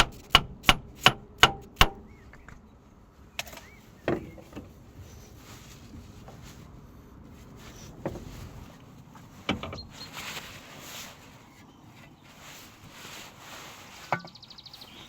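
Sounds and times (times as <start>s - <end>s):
sharp knocks: 0.0s - 2.1s
rustling: 2.2s - 15.0s.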